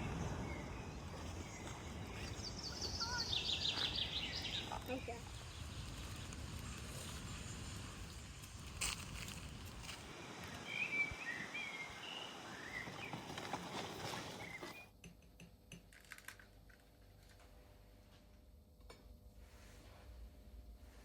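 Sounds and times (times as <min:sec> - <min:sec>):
small birds chirping: 0:00.0 - 0:14.9
outdoor background noise: 0:00.0 - 0:21.0.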